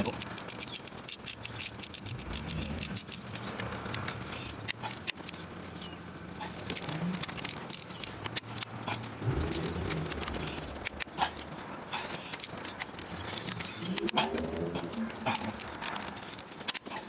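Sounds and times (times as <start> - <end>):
hand tools clicking and tapping: 0.0 - 17.0
low hum: 8.8 - 16.4.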